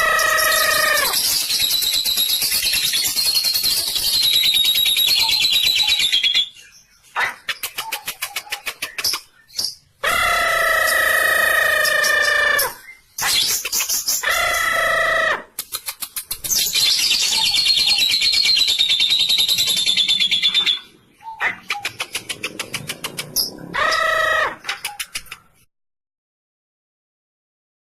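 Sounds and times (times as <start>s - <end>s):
buzzy bird tones: 0.0s - 6.5s
lovebirds trilling: 0.0s - 25.7s.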